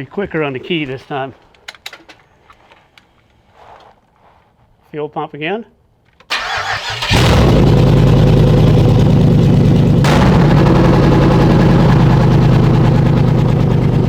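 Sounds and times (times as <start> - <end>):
starter cranking: 6.3 - 7.7
car engine running loud: 6.3 - 14.0
sharp crack: 6.3 - 14.0.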